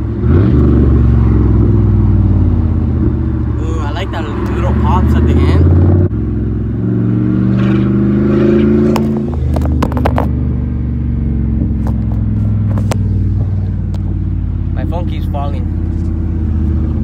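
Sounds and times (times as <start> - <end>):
truck engine revving: 0.0 - 17.0
exhaust pops: 7.5 - 10.4, 11.4 - 14.4.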